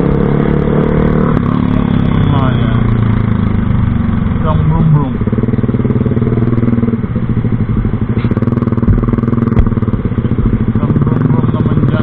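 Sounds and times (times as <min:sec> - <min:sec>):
engine idling through loud exhaust: 0:01.4 - 0:12.0
brief thumps: 0:08.2 - 0:09.8.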